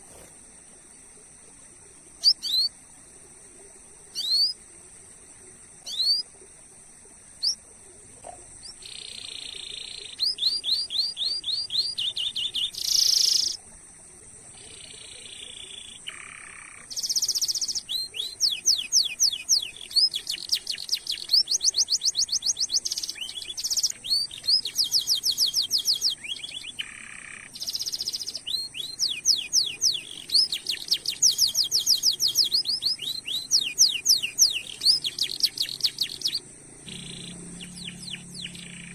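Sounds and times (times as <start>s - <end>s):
canary singing: 4.2s - 4.6s, 5.9s - 6.2s, 8.6s - 13.6s, 14.5s - 38.9s.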